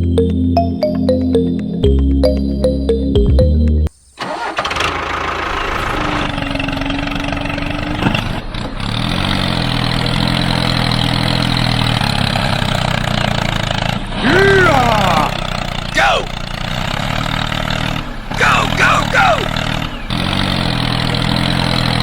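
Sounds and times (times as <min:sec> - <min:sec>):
background music: 0:00.0 - 0:03.9
motor running: 0:04.5 - 0:13.9, 0:15.1 - 0:22.0.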